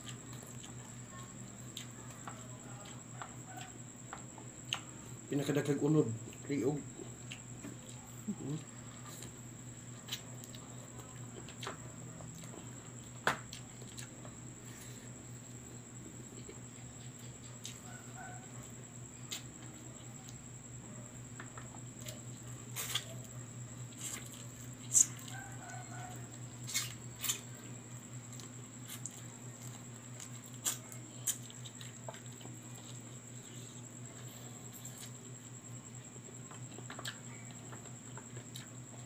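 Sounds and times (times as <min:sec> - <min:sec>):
chewing: 0:00.0 - 0:05.2, 0:07.0 - 0:20.4, 0:21.3 - 0:35.4, 0:36.0 - 0:39.0
steady low hum: 0:00.0 - 0:39.0.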